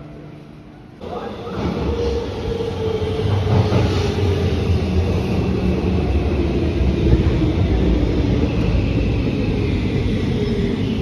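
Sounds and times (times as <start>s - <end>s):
electric train rumbling: 0.0s - 11.0s.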